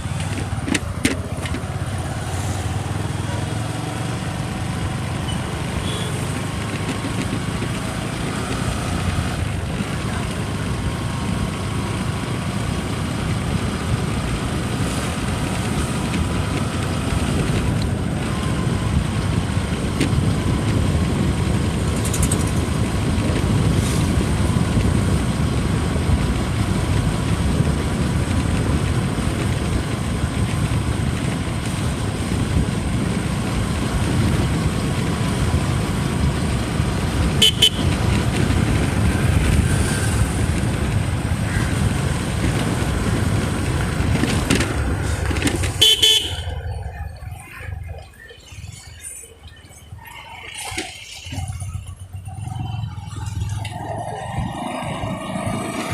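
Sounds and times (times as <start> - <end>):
wind and road noise: 0.0 - 55.9
vehicle horn toot: 5.3 - 6.3, 37.4 - 38.0, 45.7 - 46.6.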